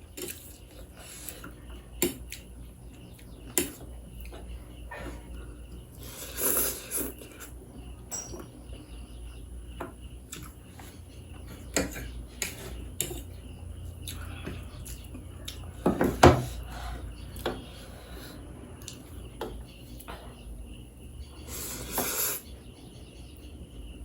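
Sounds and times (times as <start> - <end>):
cutlery clinking against dishes: 8.1 - 8.7.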